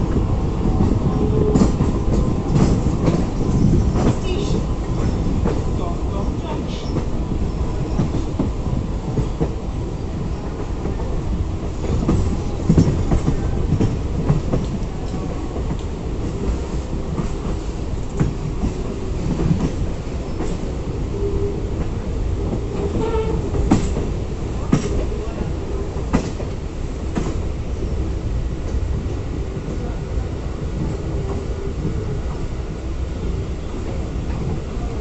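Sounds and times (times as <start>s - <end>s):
train wheels clattering on rails: 0.0s - 28.0s.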